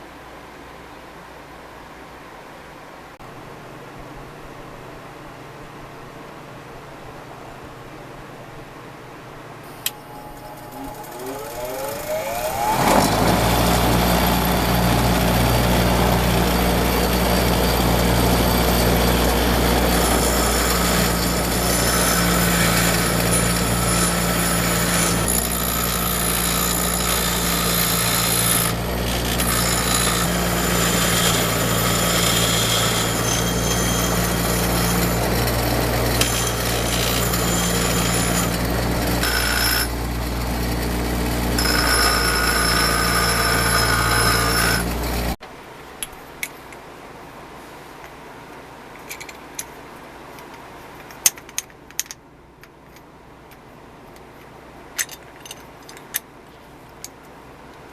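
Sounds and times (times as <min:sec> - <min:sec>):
power tool whine and hum: 0:09.6 - 0:45.4
loud grinding noise: 0:09.8 - 0:45.4.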